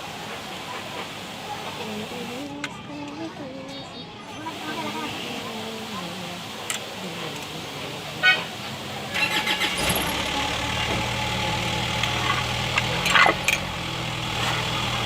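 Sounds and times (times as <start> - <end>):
diesel engine starting and idling: 6.8 - 15.0.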